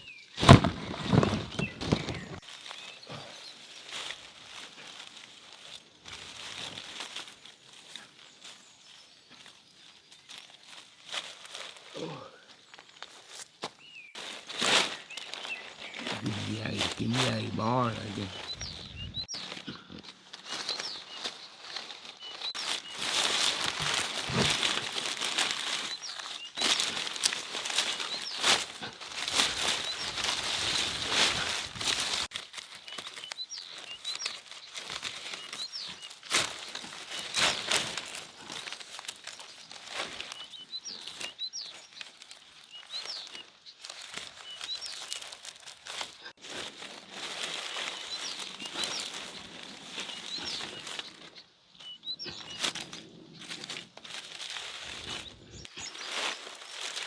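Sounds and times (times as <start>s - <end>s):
small birds chirping: 0.0s - 57.0s
dry material rustling: 0.4s - 2.6s, 14.1s - 51.3s, 52.6s - 57.0s.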